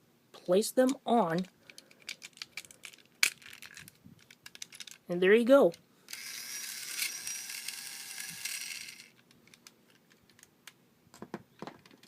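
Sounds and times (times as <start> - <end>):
toy train motor whirring: 6.1 - 9.2.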